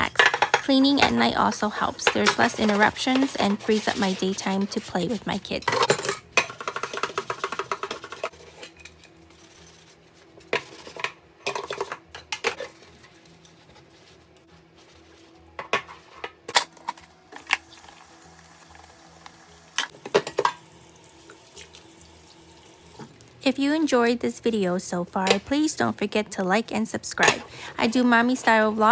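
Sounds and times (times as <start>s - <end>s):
dishes and cutlery clinking: 0.0s - 14.2s.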